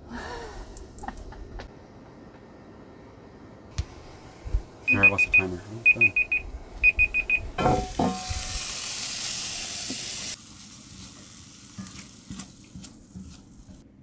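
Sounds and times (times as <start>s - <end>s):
kitchen timer beeping: 4.9s - 7.5s
green beans sizzling in skillet: 7.8s - 13.8s.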